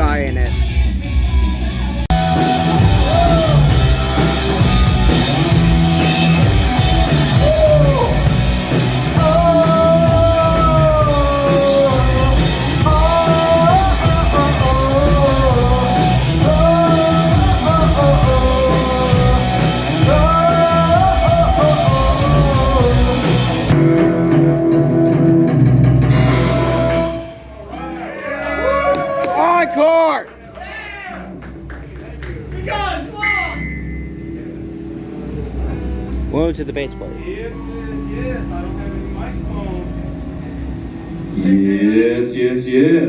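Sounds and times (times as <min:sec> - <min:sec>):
duller-sounding music: 0:00.0 - 0:27.7, 0:31.2 - 0:43.0
live rock band playing: 0:00.0 - 0:27.7, 0:31.3 - 0:41.4
lead vocalist singing: 0:09.0 - 0:23.7.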